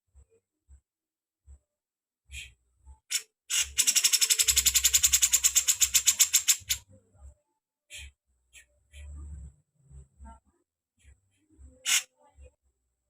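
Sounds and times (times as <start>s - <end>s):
rapid bird trill: 2.3s - 6.8s.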